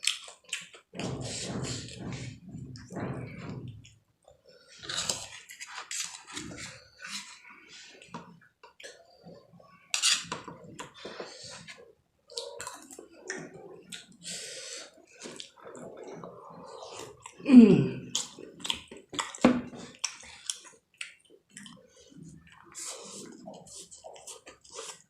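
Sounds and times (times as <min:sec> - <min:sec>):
person chewing: 0:00.0 - 0:02.0, 0:09.9 - 0:25.0.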